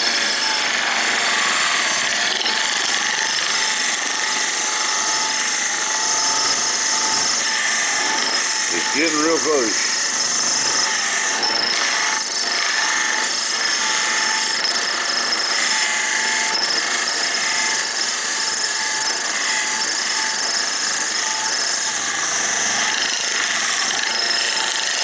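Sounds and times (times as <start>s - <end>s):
wood lathe scraping hiss: 0.0s - 18.2s.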